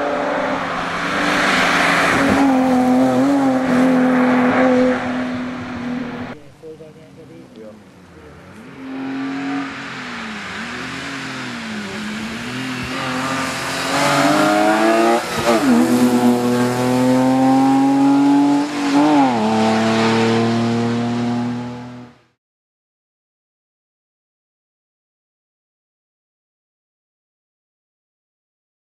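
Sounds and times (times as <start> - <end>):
rally car engine revving: 0.0 - 6.4, 8.3 - 22.3.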